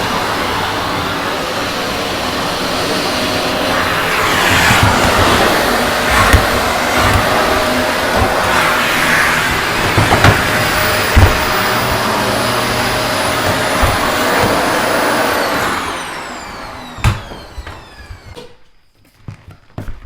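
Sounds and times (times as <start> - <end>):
vacuum cleaner whine: 0.0 - 20.0
sharp knocks: 4.4 - 11.6.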